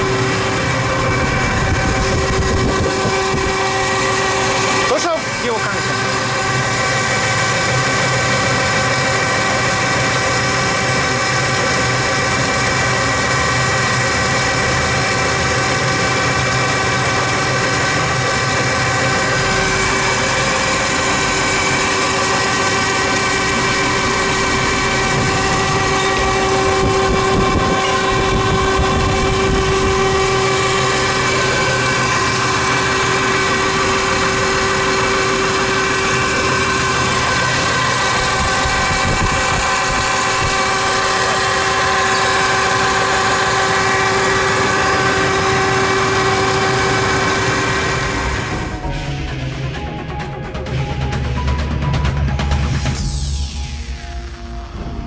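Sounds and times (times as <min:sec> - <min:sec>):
electric motor whine: 0:00.0 - 0:49.2.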